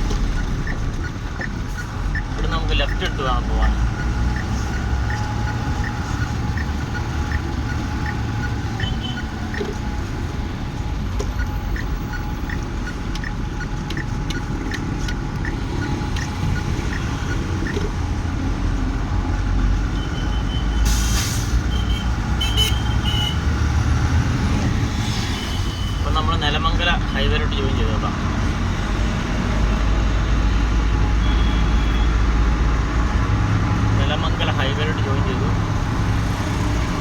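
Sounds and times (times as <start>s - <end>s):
turn indicator ticking: 0.0s - 18.4s
truck engine running: 0.0s - 25.2s.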